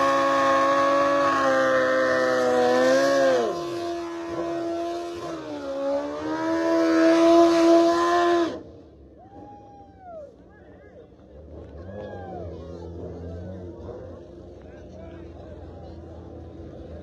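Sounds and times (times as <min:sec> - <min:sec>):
drag car engine revving: 0:00.0 - 0:09.0, 0:11.1 - 0:17.0.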